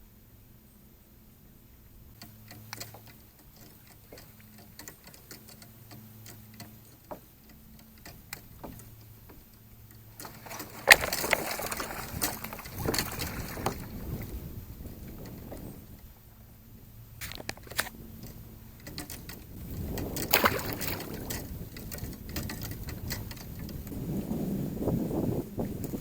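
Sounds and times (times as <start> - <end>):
light ticks and clicks: 2.1 - 16.1, 17.2 - 24.0
rough noise: 10.0 - 14.3.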